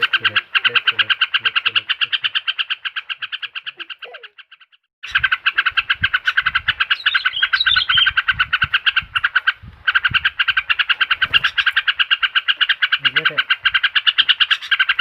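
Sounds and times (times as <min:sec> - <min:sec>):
higher bird warbling phrase: 0:00.0 - 0:04.5
bird pulsing trill: 0:00.0 - 0:15.0.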